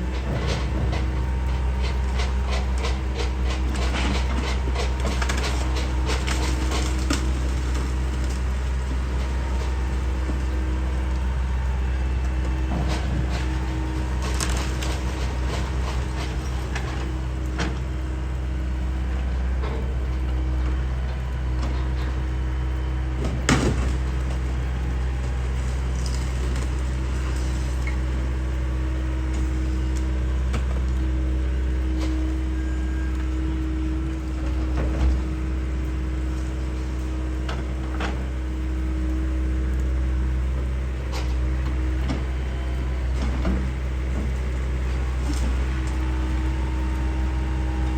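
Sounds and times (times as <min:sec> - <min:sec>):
machine clanks and knocks: 0:00.0 - 0:18.0, 0:19.6 - 0:28.4
excavator diesel engine running: 0:00.0 - 0:47.9.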